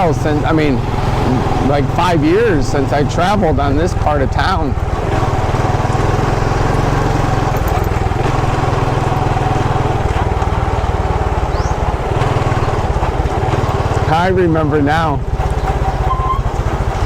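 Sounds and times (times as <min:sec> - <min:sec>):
road and wind noise: 0:00.0 - 0:17.0
small motorcycle engine cruising: 0:00.0 - 0:17.0.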